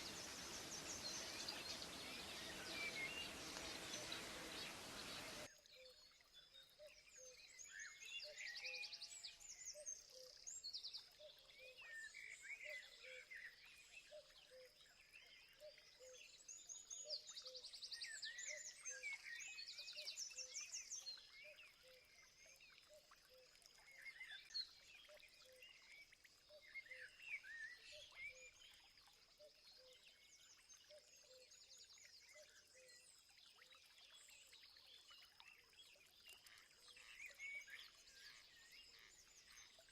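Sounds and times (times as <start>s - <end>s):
birds chirping and trilling: 0.0s - 5.5s.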